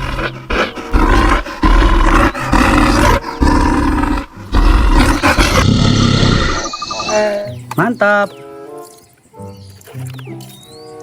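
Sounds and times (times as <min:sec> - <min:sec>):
bear roaring: 0:00.0 - 0:07.4.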